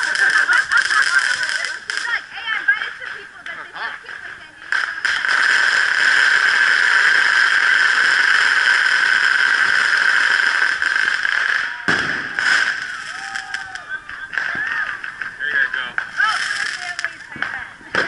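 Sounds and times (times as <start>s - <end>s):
firework bang: 4.7s - 18.0s.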